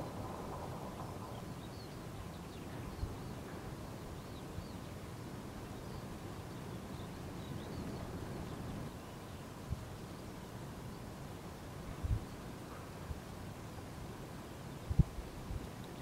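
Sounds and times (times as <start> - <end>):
low outdoor rumble: 0.0 - 3.7
distant small birds chirping: 0.0 - 9.3.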